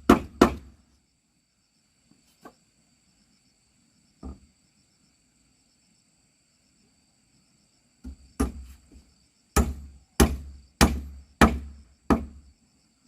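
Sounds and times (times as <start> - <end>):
hammer striking wood: 0.0 - 0.7, 8.0 - 8.7, 9.6 - 12.4.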